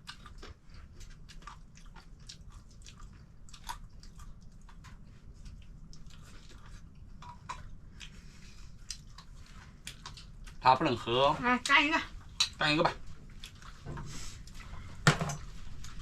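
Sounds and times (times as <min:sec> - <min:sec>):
person chewing peanuts: 0:00.0 - 0:11.1, 0:12.2 - 0:16.0
low steady hum: 0:00.0 - 0:16.0.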